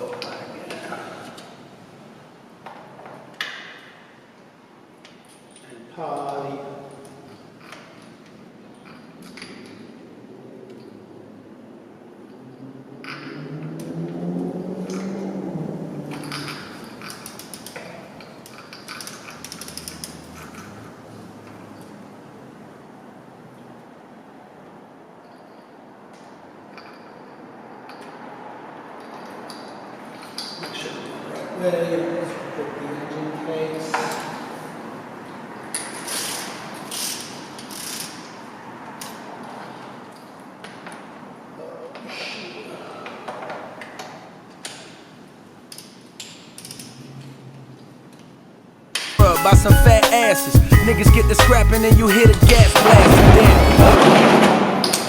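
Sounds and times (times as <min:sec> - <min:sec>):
ratchet wrench clicking: 0:35.8 - 0:38.3.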